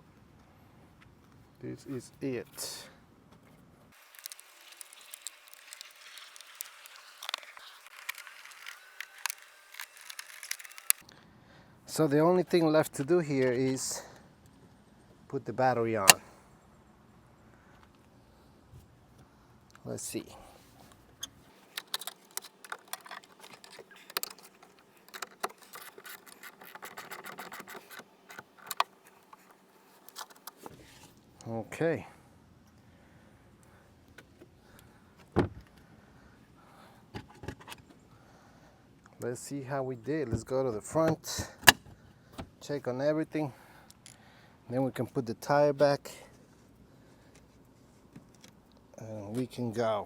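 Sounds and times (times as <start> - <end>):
hand tools clicking and scraping: 21.5 - 31.1.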